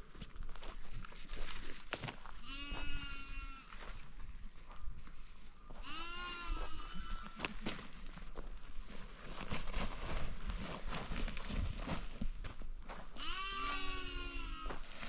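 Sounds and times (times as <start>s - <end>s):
sheep or goats bleating: 2.4s - 4.0s, 5.8s - 7.6s, 13.2s - 15.0s.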